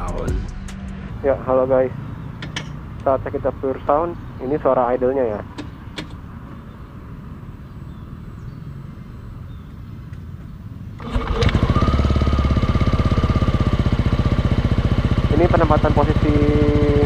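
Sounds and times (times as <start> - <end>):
scooter engine idling: 11.0 - 17.0.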